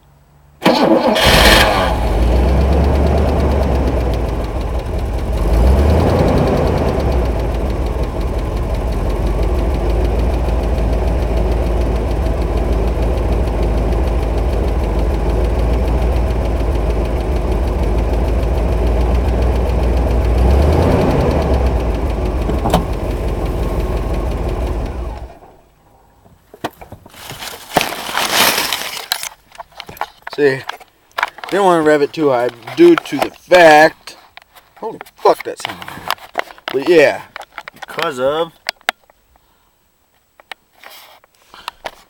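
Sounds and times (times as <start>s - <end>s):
car engine running: 0.6s - 26.4s
engine revving lightly: 0.7s - 11.3s, 14.8s - 25.7s
knocks: 22.5s - 22.9s
rustling: 26.2s - 38.0s.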